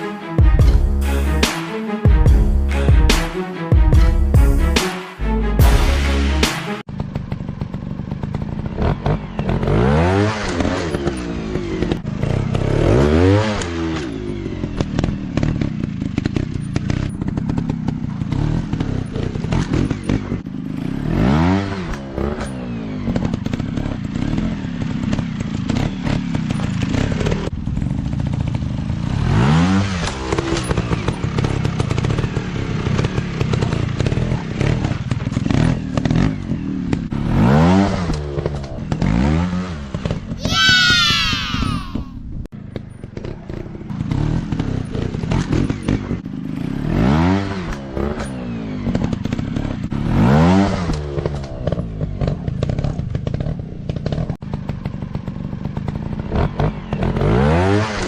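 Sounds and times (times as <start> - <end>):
dirt bike engines revving: 29.0 - 42.1.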